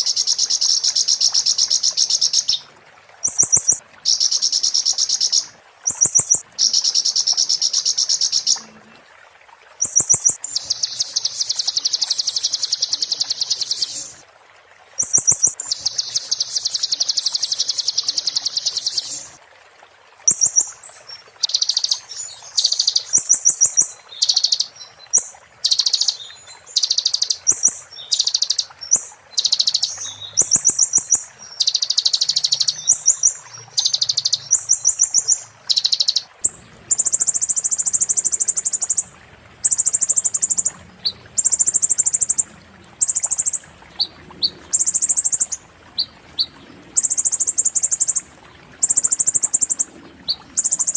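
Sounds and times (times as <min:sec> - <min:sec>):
songbird rattling trills: 0:09.8 - 0:14.2, 0:26.8 - 0:36.3.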